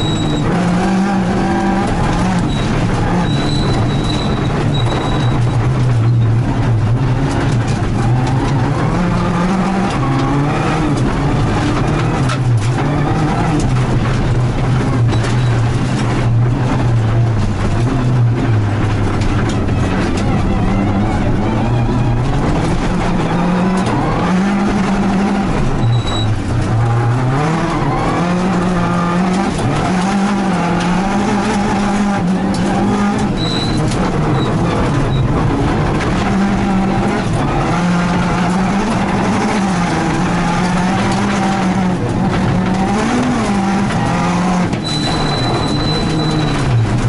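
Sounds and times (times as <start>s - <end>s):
gravel road and tyre noise: 0.0s - 47.0s
rally car engine revving: 0.0s - 47.0s
short high beeps: 44.9s - 46.5s.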